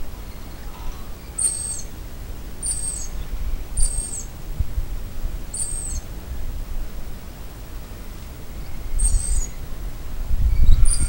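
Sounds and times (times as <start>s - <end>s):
high-pitched bird call: 0.2s - 1.9s.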